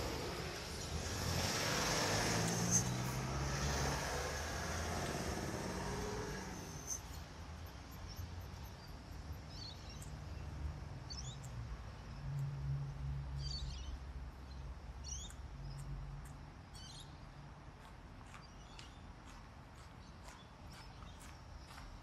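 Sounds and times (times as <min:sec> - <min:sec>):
low outdoor rumble: 0:00.0 - 0:08.1
small bird chirping: 0:05.9 - 0:10.4, 0:13.4 - 0:15.9.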